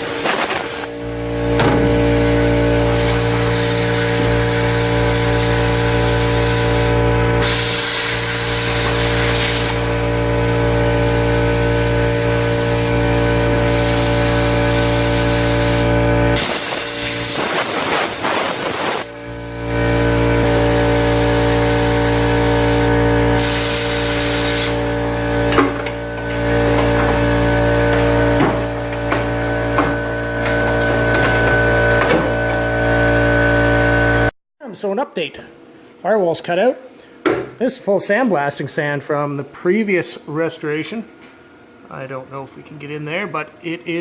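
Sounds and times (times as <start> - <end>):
plasma cutter hissing: 0.0 - 33.4
air compressor hum: 0.0 - 34.3.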